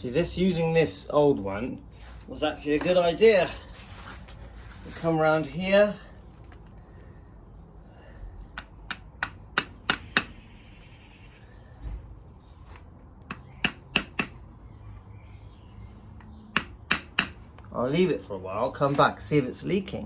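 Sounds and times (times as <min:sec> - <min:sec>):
hammer tapping metal: 0:16.6 - 0:17.4.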